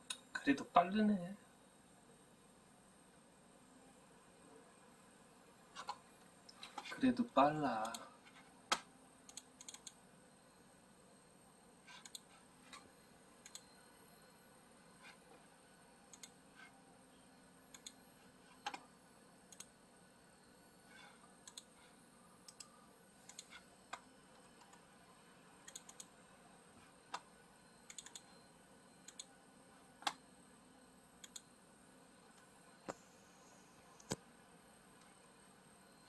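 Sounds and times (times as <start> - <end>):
computer keys and mouse clicks: 8.7 - 10.0, 11.9 - 12.8, 13.4 - 13.7, 16.1 - 16.7, 17.7 - 18.0, 19.5 - 19.7, 21.4 - 21.8, 22.5 - 22.7, 23.3 - 24.8, 25.7 - 26.1, 27.9 - 28.3, 29.0 - 29.3, 31.2 - 31.5.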